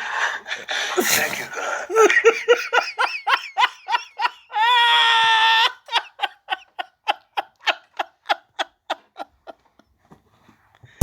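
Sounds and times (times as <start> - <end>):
person laughing: 1.0 - 9.6.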